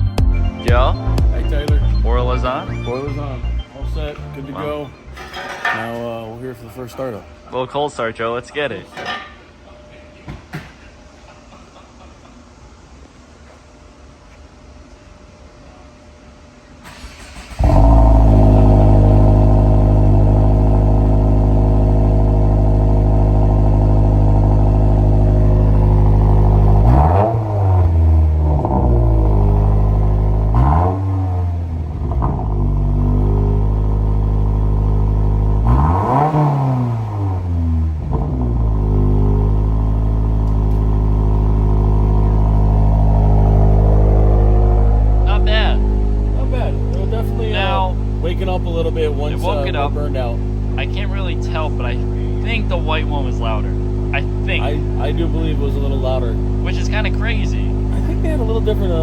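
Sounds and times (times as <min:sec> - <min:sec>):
car engine starting and revving: 0:16.8 - 0:59.0.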